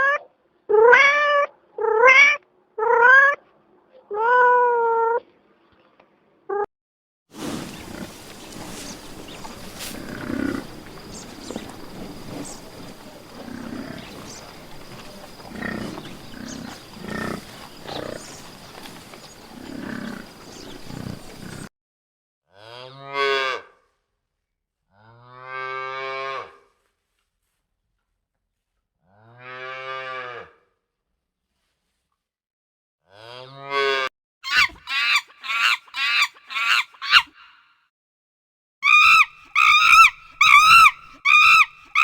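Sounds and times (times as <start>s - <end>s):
background hiss: 7.4s - 21.7s
low animal calls: 7.6s - 21.7s, 38.8s - 42.0s
cow mooing: 7.8s - 21.7s.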